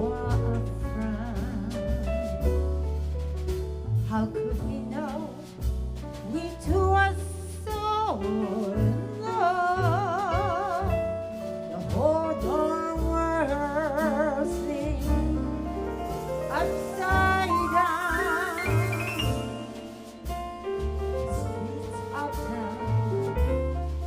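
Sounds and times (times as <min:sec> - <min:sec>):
jazz band playing a ballad: 0:00.0 - 0:24.0
low bass line: 0:00.0 - 0:24.0
high lead line with vibrato: 0:16.6 - 0:20.7.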